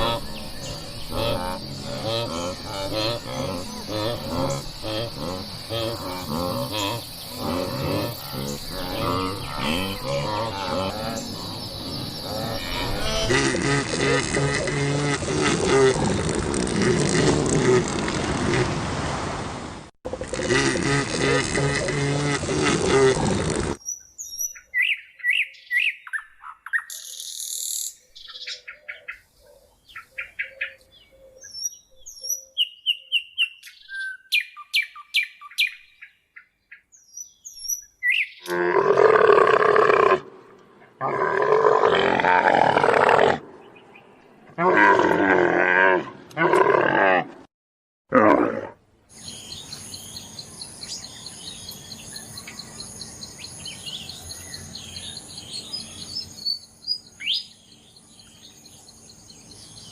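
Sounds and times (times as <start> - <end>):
songbirds chirping: 0.0 - 13.4, 23.8 - 39.9, 42.9 - 44.6, 49.1 - 59.9.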